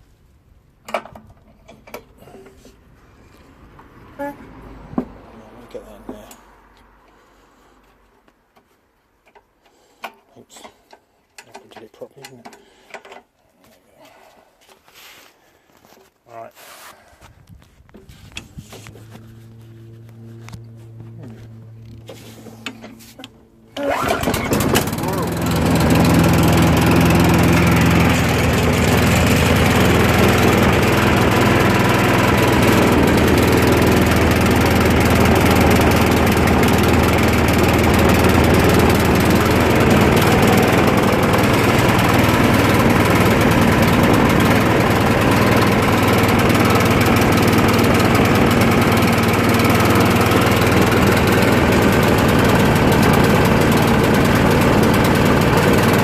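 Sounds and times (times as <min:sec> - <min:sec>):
lawn mower engine running: 0:18.1 - 0:56.0.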